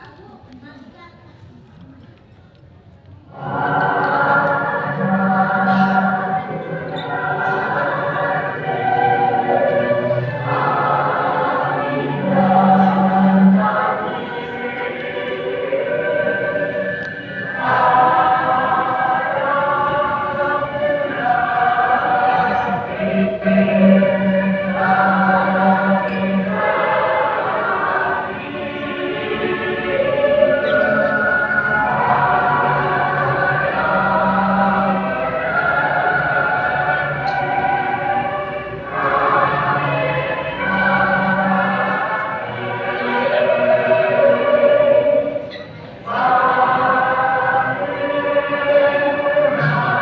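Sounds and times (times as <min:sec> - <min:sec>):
choir singing held chords: 0:03.2 - 0:50.0.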